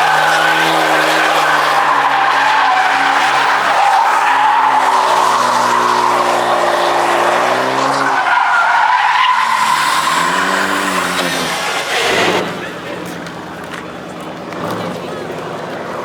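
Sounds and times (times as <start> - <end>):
car engine revving high: 0.0 - 8.3, 9.3 - 12.6
tyres squealing: 0.0 - 12.8.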